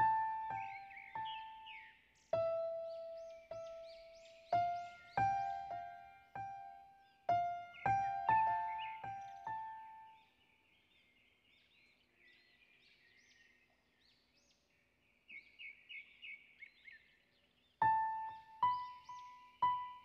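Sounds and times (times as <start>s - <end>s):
slow piano notes: 0.0s - 1.8s, 2.4s - 10.1s, 17.8s - 20.0s
birds chirping and twittering: 0.0s - 20.0s.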